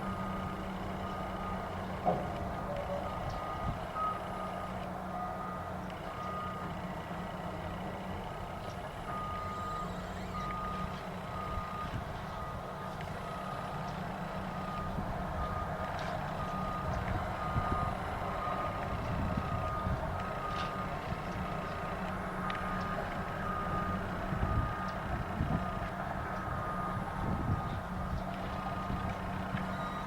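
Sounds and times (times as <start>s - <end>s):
diesel engines rumbling: 0.0s - 30.0s
backup alarm beeping: 9.0s - 13.8s, 29.7s - 30.0s.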